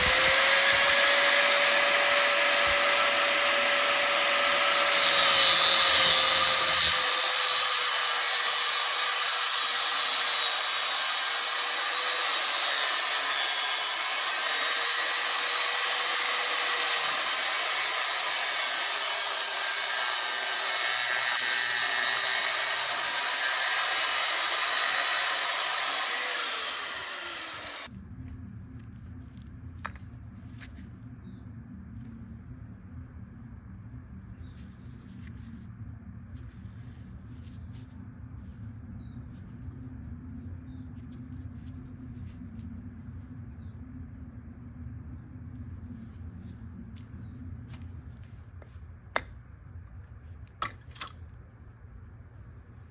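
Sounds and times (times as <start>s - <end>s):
angle grinder grinding metal: 0.0s - 27.9s
grinder spinning down: 0.0s - 27.9s.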